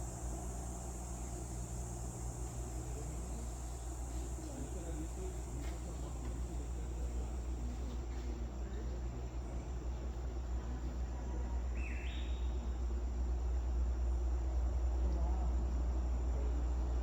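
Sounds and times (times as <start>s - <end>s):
insects trilling: 0.0s - 8.0s, 11.8s - 12.8s.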